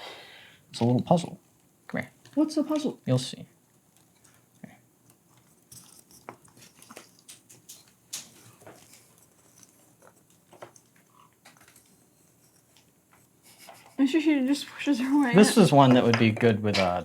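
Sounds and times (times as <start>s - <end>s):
toy blocks clicking and tapping: 15.8s - 17.0s.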